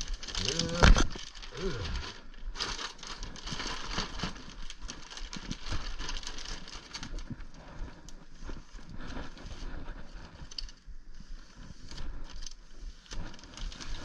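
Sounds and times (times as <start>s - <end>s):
packaging rustling: 0.0s - 10.8s.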